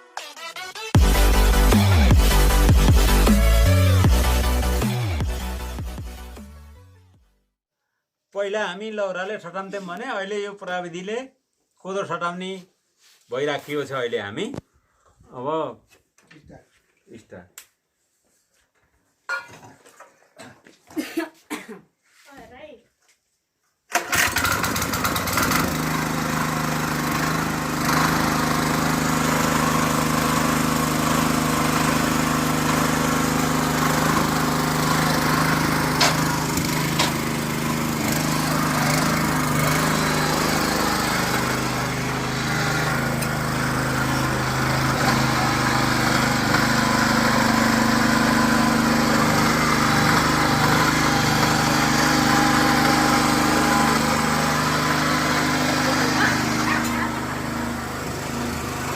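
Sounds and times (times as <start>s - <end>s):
tractor engine running: 24.0s - 58.9s.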